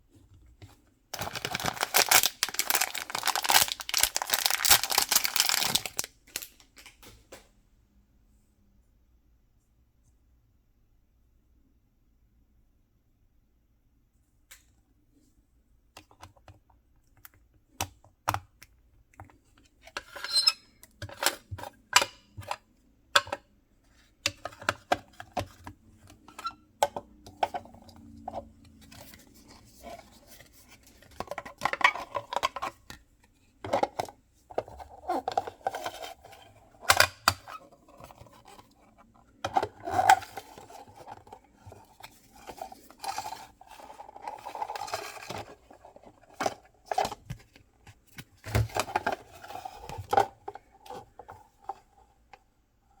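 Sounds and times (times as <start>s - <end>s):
packaging rustling and crinkling: 1.2s - 6.9s
packaging clicks and taps: 1.2s - 7.1s.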